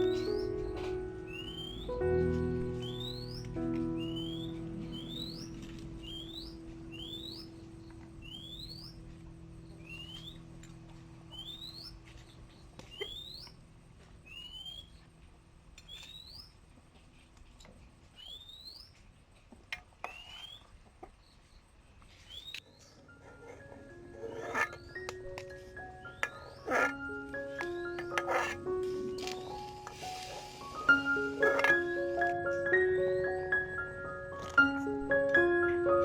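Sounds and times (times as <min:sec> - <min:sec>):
bird chirping: 0:00.0 - 0:13.6, 0:14.2 - 0:15.1, 0:15.8 - 0:16.6, 0:18.1 - 0:19.1, 0:20.0 - 0:23.0.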